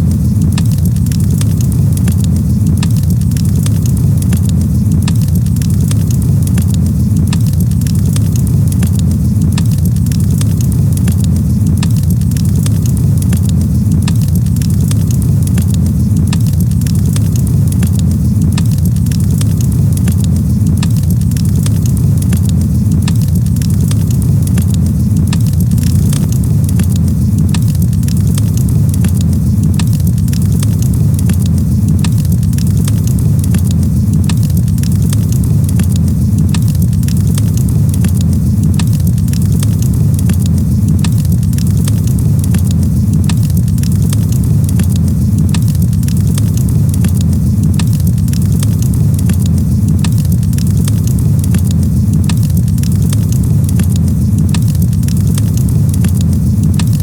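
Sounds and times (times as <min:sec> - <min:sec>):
campfire crackling and popping: 0:00.0 - 0:57.0
low fire rumble: 0:00.0 - 0:57.0.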